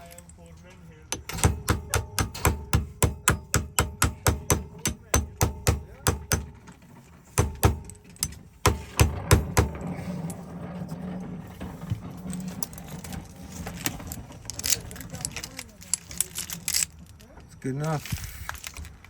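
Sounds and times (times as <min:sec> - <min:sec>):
hammer tapping on metal: 0:01.1 - 0:06.8, 0:07.4 - 0:09.9.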